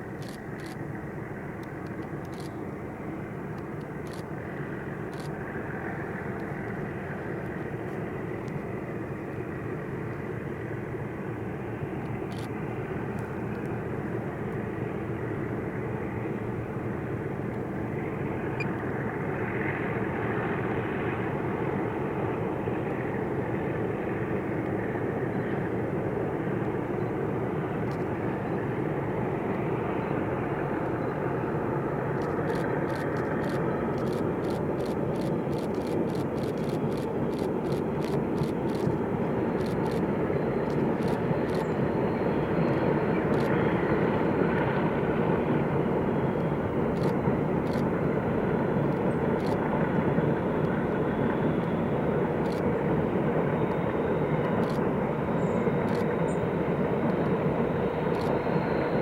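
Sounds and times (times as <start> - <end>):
diesel locomotive engine rumbling: 0.0 - 59.0.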